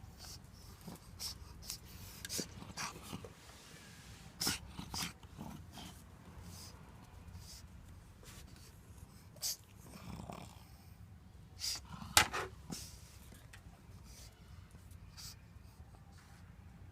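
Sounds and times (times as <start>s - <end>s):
dog snorting and sniffing: 0.1s - 3.3s, 4.4s - 7.6s, 8.2s - 11.0s.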